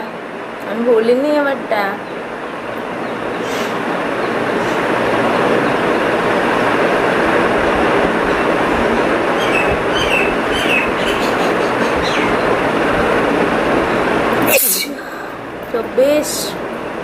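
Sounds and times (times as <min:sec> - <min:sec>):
train wheels rushing on rails: 0:00.0 - 0:17.0.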